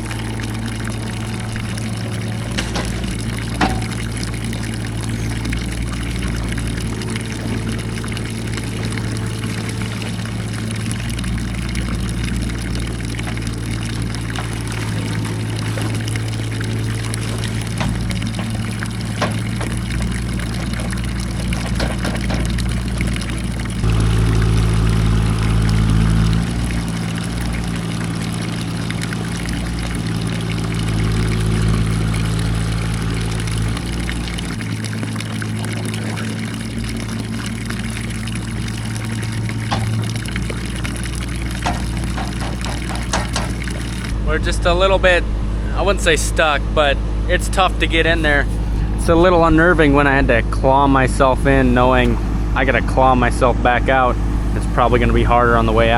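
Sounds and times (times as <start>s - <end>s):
small engine running: 0.0s - 55.9s
digging knocks and scrapes: 41.6s - 43.9s.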